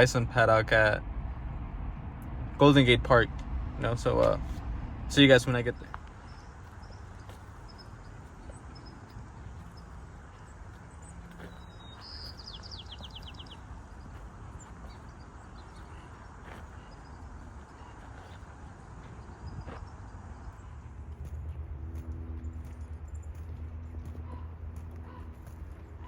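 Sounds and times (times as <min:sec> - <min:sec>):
steady low rumble: 0:00.0 - 0:26.0
songbird trill: 0:05.2 - 0:21.6
small bird chirps: 0:06.2 - 0:18.5.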